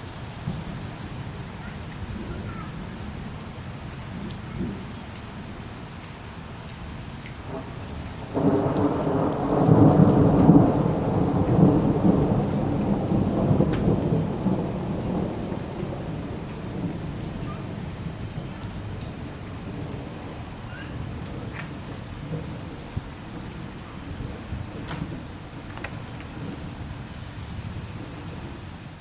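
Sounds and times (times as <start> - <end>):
steady rain: 0.0 - 29.0
thunder rumbling: 4.1 - 5.6, 7.4 - 29.0.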